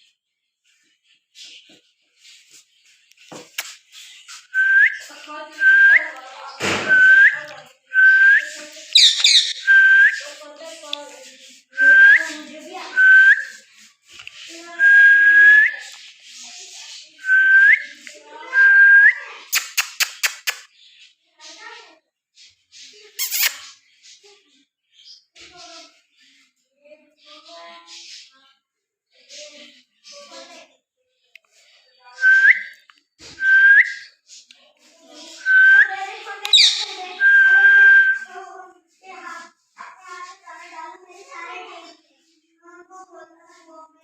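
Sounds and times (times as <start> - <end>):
high parrot chirp: 6.8 - 10.4, 22.9 - 23.8, 35.2 - 38.3
parrot whistling: 9.0 - 10.2, 36.5 - 38.2.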